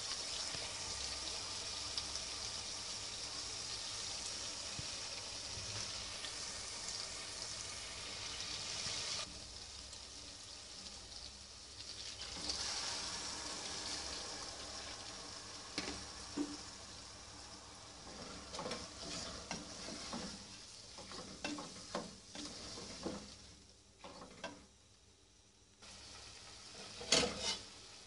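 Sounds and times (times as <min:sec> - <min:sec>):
lentils sizzling in hot oil: 0:00.0 - 0:28.0
wooden spoon scraping a pot: 0:18.0 - 0:24.5, 0:26.7 - 0:27.7.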